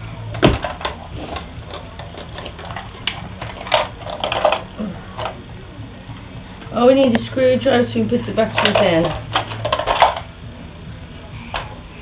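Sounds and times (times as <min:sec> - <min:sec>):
plastic toy tractor clicks and knocks: 0:01.7 - 0:04.6, 0:08.6 - 0:10.3.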